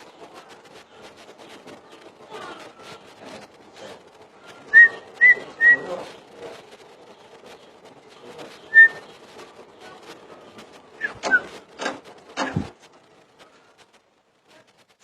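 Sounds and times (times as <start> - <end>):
bird whistled notes: 8.7 - 9.1.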